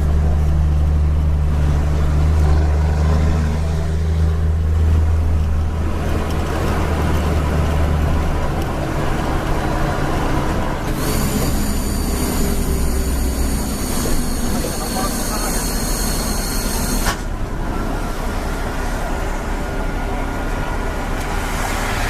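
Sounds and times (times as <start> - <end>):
truck diesel engine droning: 0.0 - 22.0
high whistle: 11.6 - 17.2.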